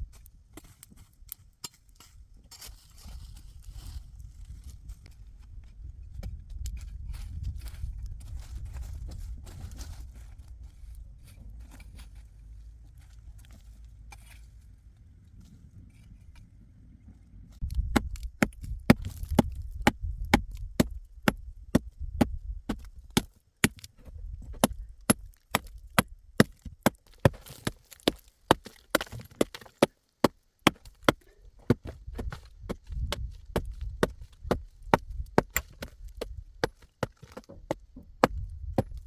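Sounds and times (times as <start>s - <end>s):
low steady rumble: 3.1s - 23.2s.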